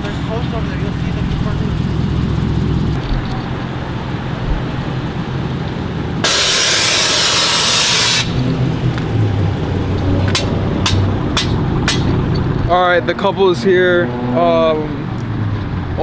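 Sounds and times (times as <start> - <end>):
vehicle engines rumbling: 0.0 - 16.0
loud steady hiss: 6.2 - 8.8.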